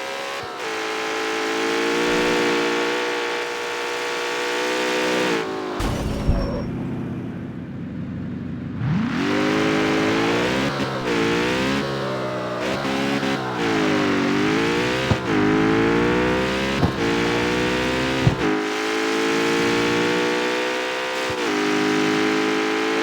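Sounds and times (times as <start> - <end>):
car engine revving under load: 0.8 - 23.0
exhaust pop: 14.3 - 18.6.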